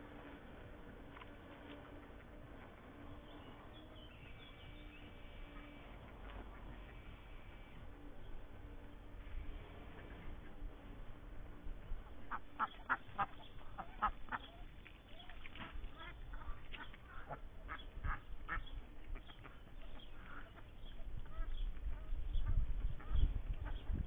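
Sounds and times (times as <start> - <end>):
ducks quacking: 5.3 - 7.8, 12.2 - 24.0.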